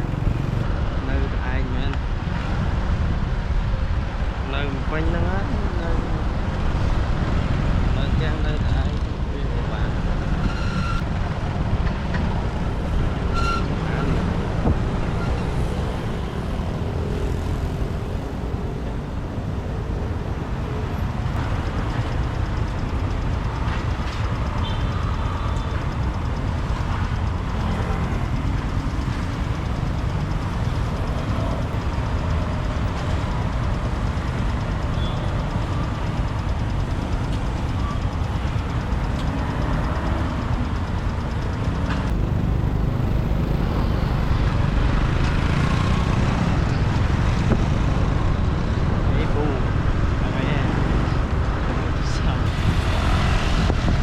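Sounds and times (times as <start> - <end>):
motorbike engine rumble: 0.0 - 0.6, 13.9 - 48.8
city traffic: 0.0 - 54.0.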